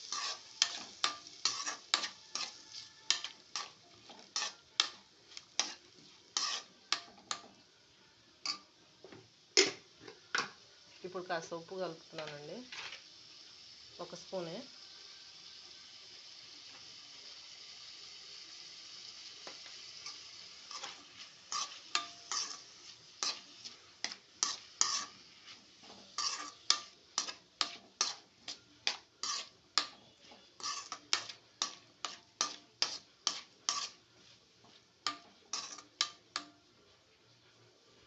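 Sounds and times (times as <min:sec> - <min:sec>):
spoon scraping and knocking pan: 0:00.0 - 0:07.6, 0:19.4 - 0:36.7
vegetables sizzling in a pan: 0:00.0 - 0:38.0.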